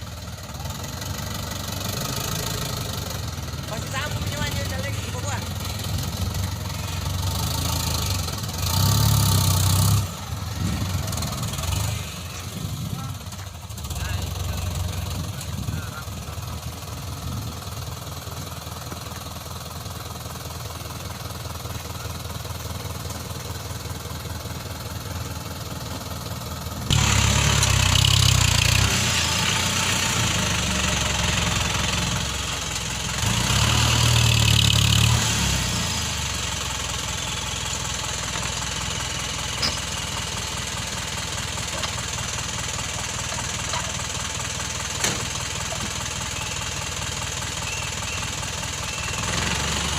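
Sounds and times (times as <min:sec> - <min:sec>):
diesel truck engine knocking: 0:12.5 - 0:27.8, 0:36.5 - 0:49.8.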